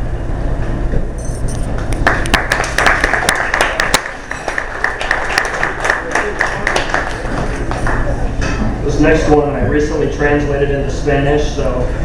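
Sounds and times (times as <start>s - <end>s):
audience clapping: 1.7s - 8.3s.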